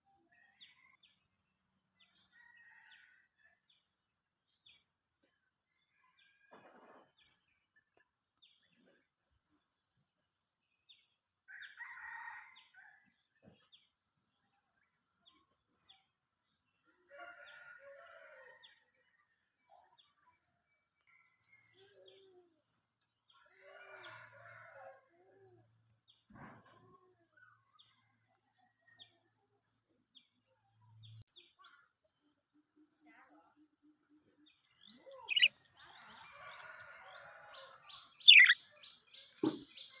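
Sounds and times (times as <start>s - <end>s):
budgerigars chirping and trilling: 35.3s - 35.5s, 38.3s - 38.6s.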